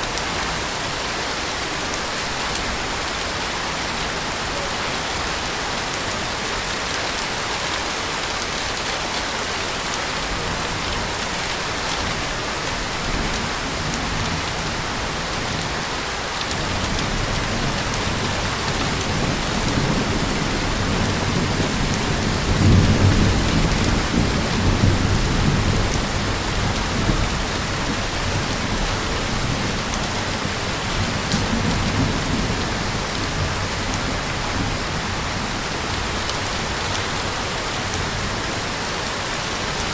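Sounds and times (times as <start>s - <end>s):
heavy rain: 0.0s - 39.9s
thunder rumbling: 16.5s - 38.6s.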